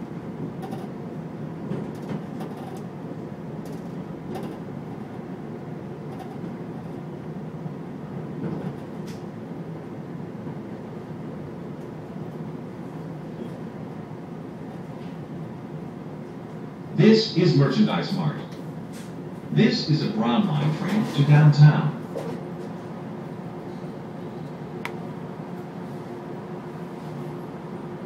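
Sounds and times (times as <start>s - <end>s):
train wheels rumbling on rails: 0.0s - 3.0s, 8.0s - 9.3s.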